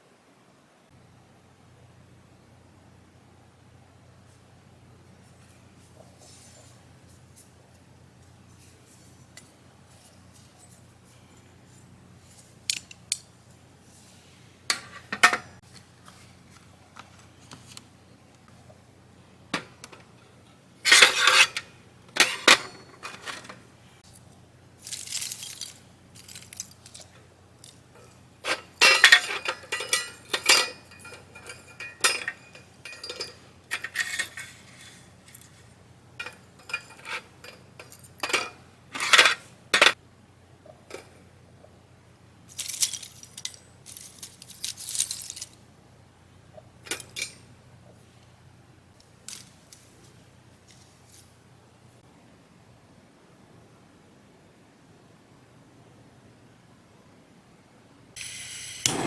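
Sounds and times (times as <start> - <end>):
light metal clinks and clatter: 5.2 - 14.1, 24.1 - 40.0, 42.5 - 45.6.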